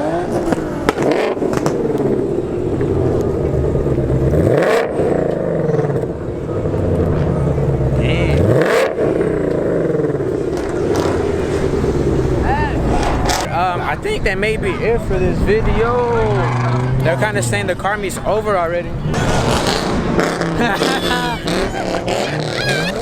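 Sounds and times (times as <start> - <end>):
car engine revving: 0.0 - 13.8, 14.7 - 23.0.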